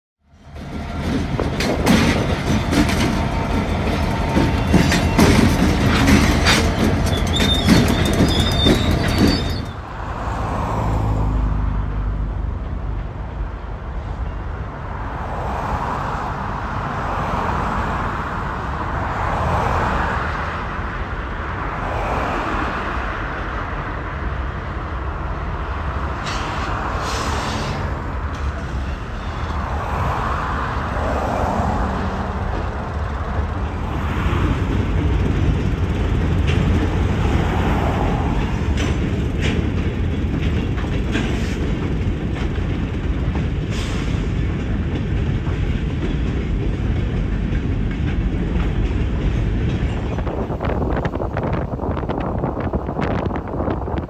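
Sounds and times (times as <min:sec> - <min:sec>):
freight train passing: 0:00.2 - 0:54.0
road traffic rush: 0:00.2 - 0:54.0
wheel clicks over rail joints: 0:01.0 - 0:09.8
high wheel squeal: 0:02.2 - 0:10.0, 0:26.2 - 0:29.8.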